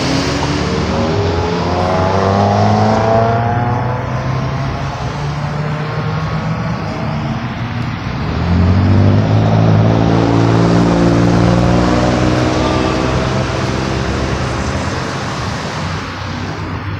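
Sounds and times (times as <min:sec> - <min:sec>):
vehicle engine running: 0:00.0 - 0:16.8.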